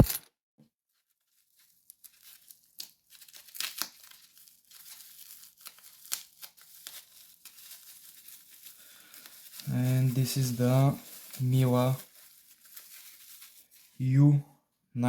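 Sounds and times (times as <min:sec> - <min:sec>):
packaging crinkling and rustling: 0:00.9 - 0:14.0
small clicks and crackles: 0:01.0 - 0:14.0.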